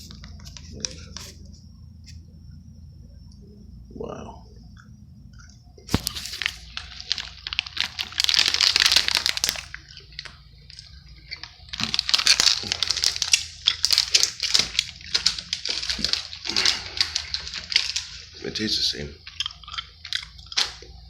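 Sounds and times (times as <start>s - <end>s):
crunchy snack being chewed: 4.8s - 21.0s.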